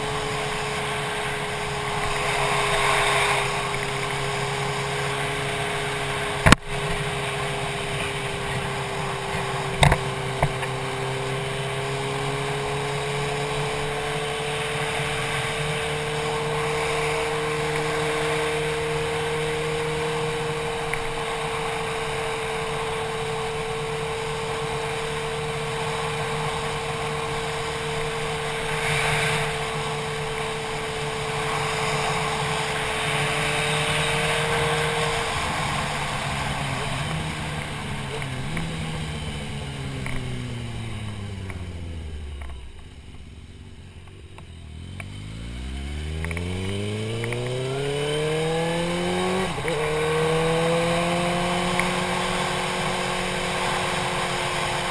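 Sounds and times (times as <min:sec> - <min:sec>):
motorcycle engine cruising: 0:00.0 - 0:54.9
sharp clicks: 0:46.2 - 0:46.5.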